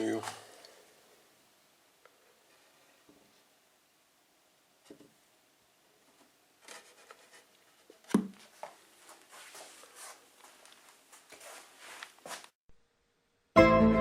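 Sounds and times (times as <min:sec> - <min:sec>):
wood scraping on wood: 0:06.6 - 0:08.2.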